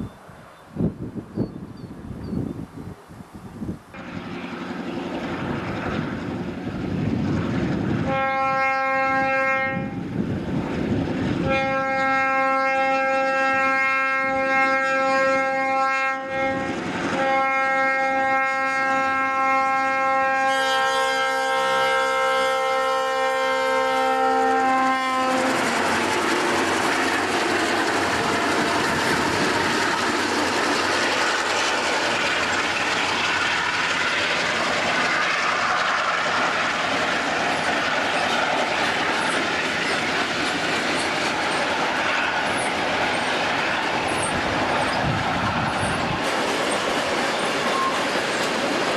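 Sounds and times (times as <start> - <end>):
train cars rumbling past: 0.0 - 48.9
locomotive air horn: 8.0 - 10.0, 11.4 - 25.7.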